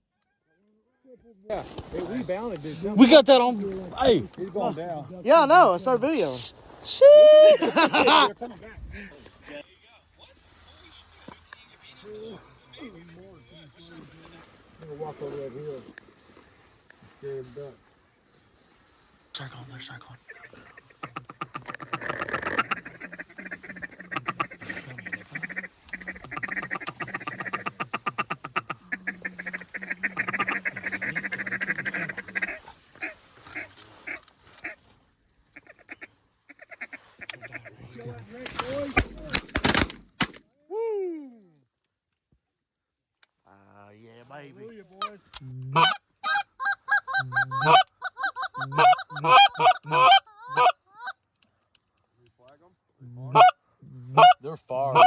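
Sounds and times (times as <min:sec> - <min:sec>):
duck call quacks and chuckles: 0:07.0 - 0:08.3, 0:20.7 - 0:34.8, 0:45.7 - 0:51.2, 0:53.3 - 0:53.5, 0:54.1 - 0:54.4
goose honking: 0:20.3 - 0:34.8, 0:45.0 - 0:51.1, 0:53.3 - 0:53.6, 0:54.2 - 0:55.0.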